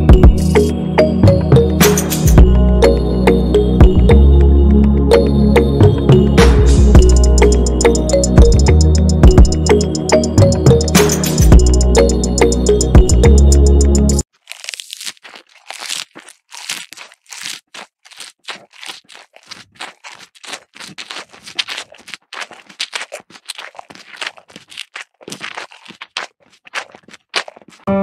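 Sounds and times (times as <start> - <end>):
cows chewing grass: 14.4 - 28.0.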